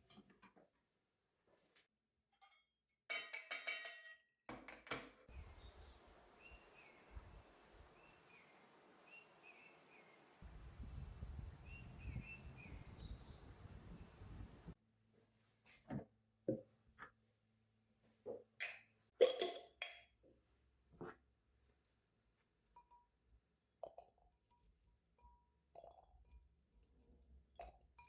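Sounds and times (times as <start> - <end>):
low wind rumble: 5.3 - 9.4, 10.2 - 14.8
small bird chirping: 5.3 - 14.8
soft hiss: 5.3 - 14.8.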